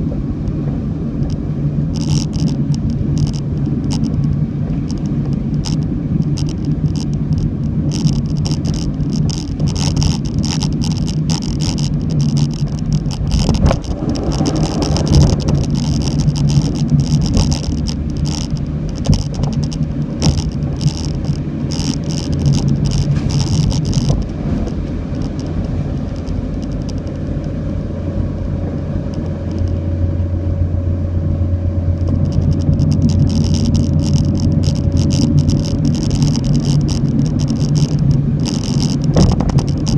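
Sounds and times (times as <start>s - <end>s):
rain tapping on car: 0.0s - 30.8s, 31.5s - 39.9s
car engine and road noise: 0.0s - 39.9s.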